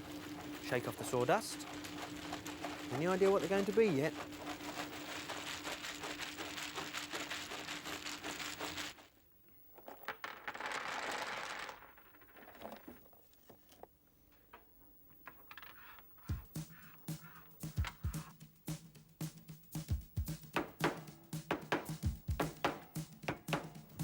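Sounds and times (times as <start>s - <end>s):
woodworking machine humming: 0.0s - 7.5s
crackle of wood cutting: 0.0s - 9.1s
wooden pieces clicking and knocking: 9.8s - 13.0s, 15.2s - 16.4s.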